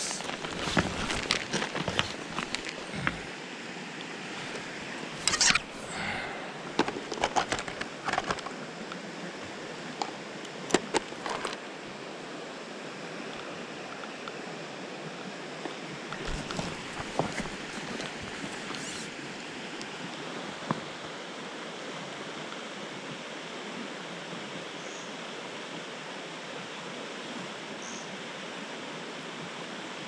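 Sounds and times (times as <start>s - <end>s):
clicks and rustles of handling gear: 0.0s - 3.3s, 4.4s - 6.1s, 6.7s - 8.6s, 10.0s - 11.6s, 16.1s - 19.2s
stream water rushing: 0.0s - 30.0s.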